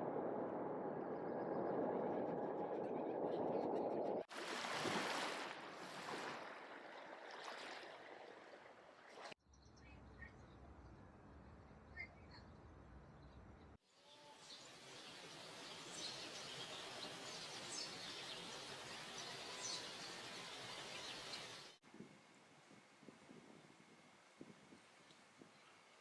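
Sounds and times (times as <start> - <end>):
low hum: 0.0 - 4.3
outdoor rushing noise: 0.0 - 4.3
faint bird chirps: 9.5 - 13.4.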